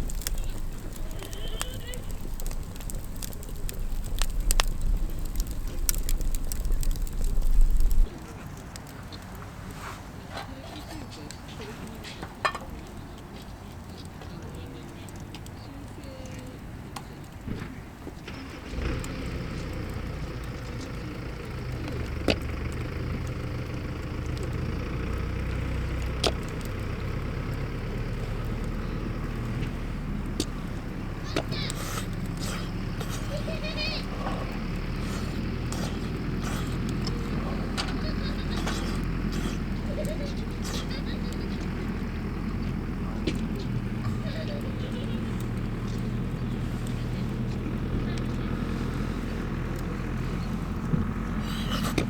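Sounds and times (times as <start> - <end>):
wind rumble on microphone: 0.0 - 8.2
sharp clicks: 0.0 - 9.4
engine idling: 0.0 - 10.2, 18.3 - 52.0
campfire crackling and popping: 0.0 - 52.0.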